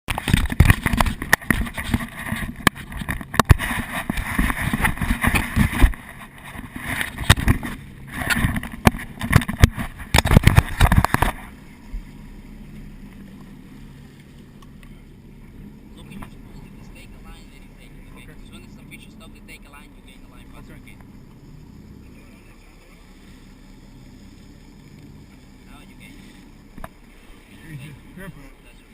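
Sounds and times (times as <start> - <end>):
boat engine hum: 0.1 - 28.9.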